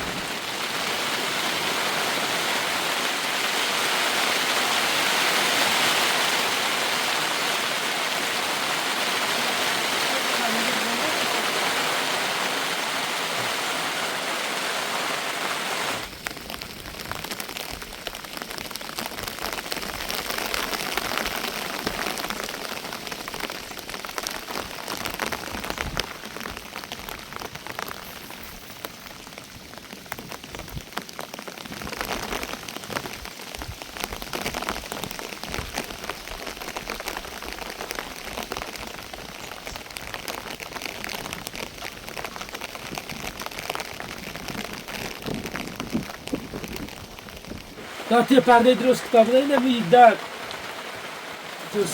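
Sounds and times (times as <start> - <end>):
heavy rain hissing: 0.0 - 29.8, 43.4 - 51.9
raindrops clicking on hard surface: 16.1 - 51.9.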